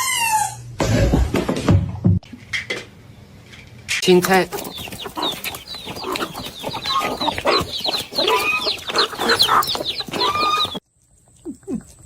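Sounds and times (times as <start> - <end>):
chickens clucking: 4.0 - 10.8.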